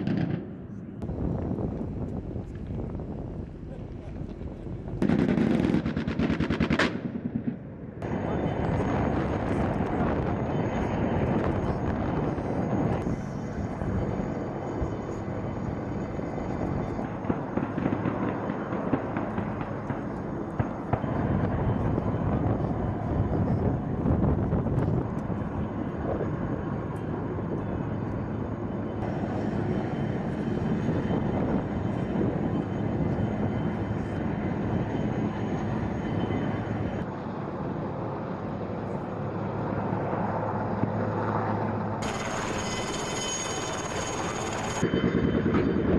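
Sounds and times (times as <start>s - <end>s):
sharp cracks: 5.0s - 7.6s
heavy engines running: 41.6s - 45.8s.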